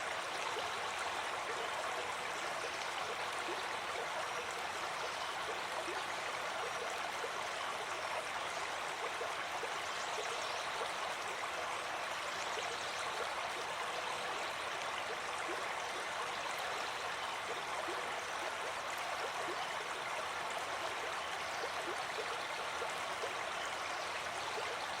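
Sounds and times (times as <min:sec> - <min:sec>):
brook babbling: 0:00.0 - 0:25.0.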